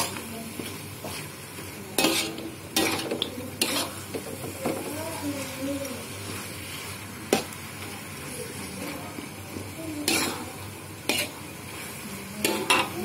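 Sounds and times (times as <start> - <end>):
metal spoon scraping a wok: 0.0 - 4.9, 10.0 - 13.0
food sizzling in a wok: 0.0 - 13.0.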